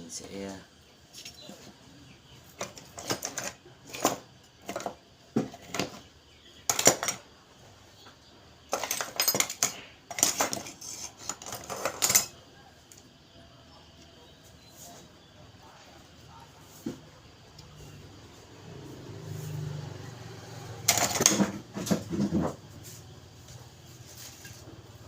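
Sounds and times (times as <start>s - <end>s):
metal parts and tools clattering: 2.6s - 7.2s, 8.6s - 12.4s, 20.9s - 22.6s.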